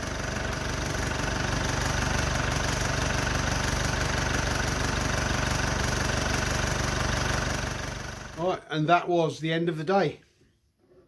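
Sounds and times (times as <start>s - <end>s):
engine rattle: 0.0s - 8.4s
diesel engine idling: 0.0s - 8.5s.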